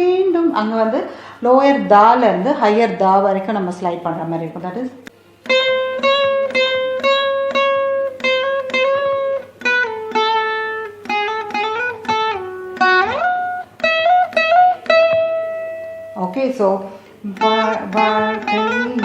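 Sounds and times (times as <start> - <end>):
veena plucked notes and slide: 5.2 - 16.4, 17.0 - 19.0.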